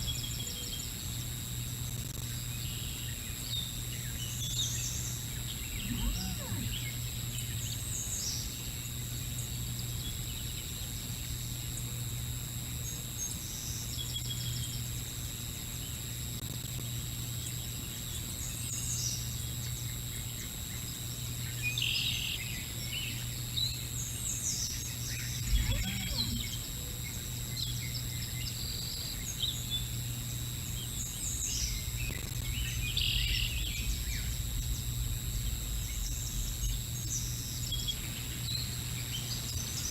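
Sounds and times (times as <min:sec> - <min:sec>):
electrical hum: 0:00.0 - 0:39.9
outdoor background noise: 0:00.0 - 0:39.9
birds chirping: 0:02.4 - 0:08.5, 0:24.2 - 0:29.9, 0:30.7 - 0:39.9.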